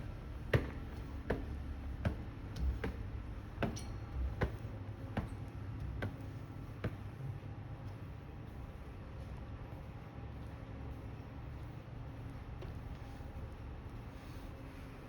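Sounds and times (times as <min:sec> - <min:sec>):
low background hum: 0:00.0 - 0:15.0
footsteps on hard floor: 0:00.5 - 0:06.2.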